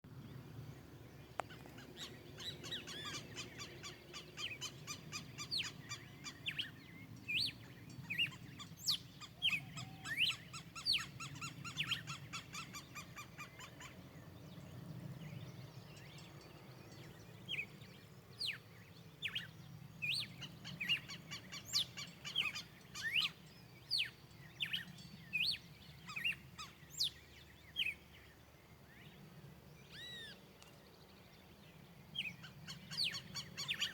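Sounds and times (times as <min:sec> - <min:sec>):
faint low background noise: 0:00.1 - 0:33.9
birds chirping and whistling: 0:01.5 - 0:13.9, 0:18.4 - 0:28.0, 0:29.9 - 0:30.4, 0:32.2 - 0:33.9.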